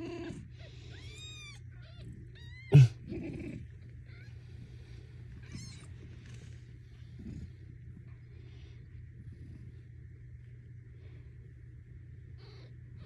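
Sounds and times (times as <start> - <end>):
kittens mewing: 0.0 - 6.5
loud animal cry: 2.6 - 3.5.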